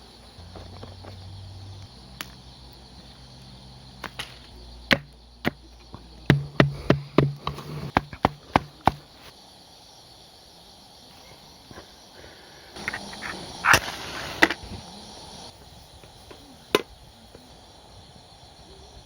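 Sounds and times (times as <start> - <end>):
hatchet chopping wood: 4.9 - 5.6, 6.3 - 9.0.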